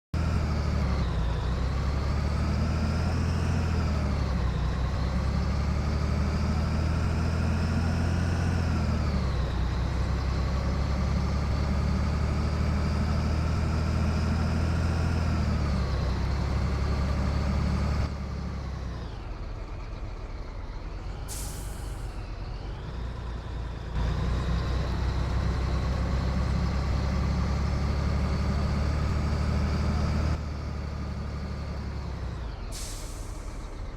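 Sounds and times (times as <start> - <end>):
truck diesel engine revving: 0.2 - 33.9.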